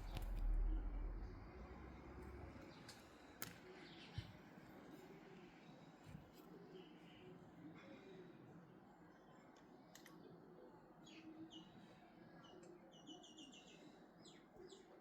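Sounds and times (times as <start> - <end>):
low background hum: 0.0 - 8.2
faint bird chirps: 11.0 - 15.0.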